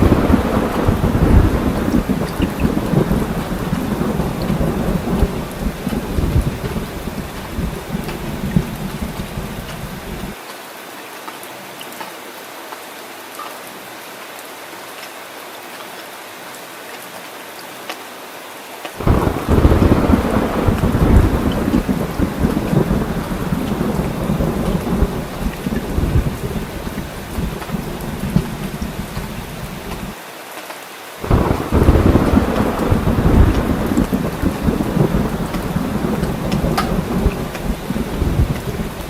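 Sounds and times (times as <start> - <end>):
loud thunderclap: 0.0 - 10.4, 19.0 - 30.2, 31.2 - 39.0
rolling thunder: 0.0 - 10.4, 19.0 - 30.2, 31.2 - 39.0
steady rain falling: 0.0 - 39.0.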